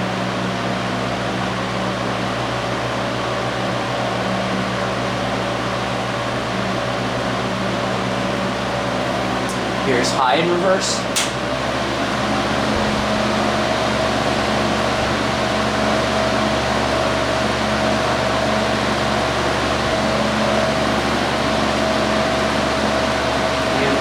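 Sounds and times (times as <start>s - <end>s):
fan motor hum: 0.0s - 24.0s.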